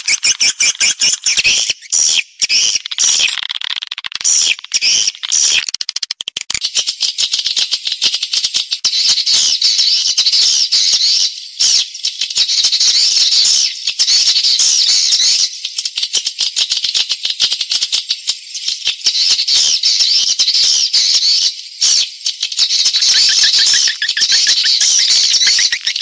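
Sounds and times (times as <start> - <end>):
recorded swiftlet call twittering: 0.0 - 26.0.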